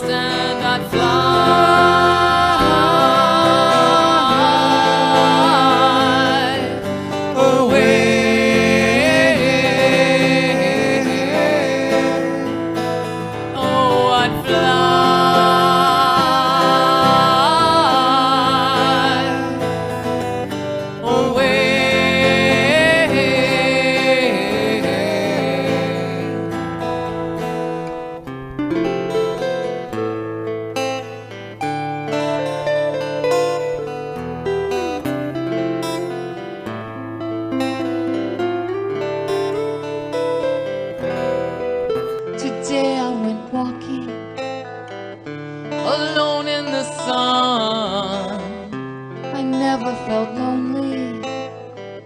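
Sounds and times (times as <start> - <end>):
person singing with vibrato: 0.0 - 27.6, 38.9 - 44.7, 45.8 - 51.9
acoustic guitar chords: 0.0 - 52.0.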